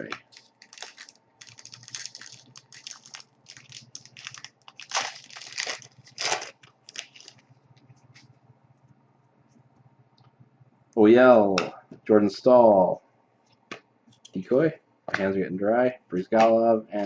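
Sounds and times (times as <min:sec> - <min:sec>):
foil wrapper crinkling and tearing: 0:00.0 - 0:07.5
cards rustling in hands: 0:00.0 - 0:08.3.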